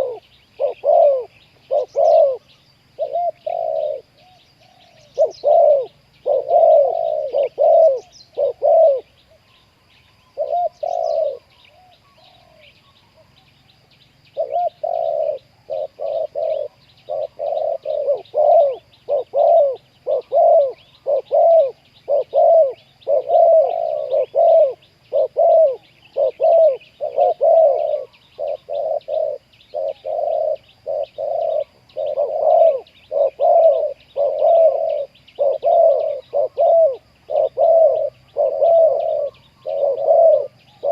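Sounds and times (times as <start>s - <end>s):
doves cooing: 0.0s - 9.4s, 10.2s - 13.4s, 14.3s - 40.9s
faint high chirping: 0.0s - 40.9s.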